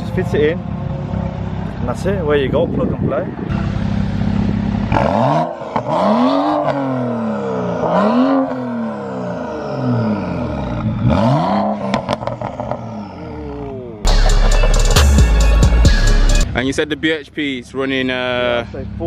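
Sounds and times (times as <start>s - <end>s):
car engine revving: 3.2s - 16.6s
exhaust cracks: 3.6s - 15.5s.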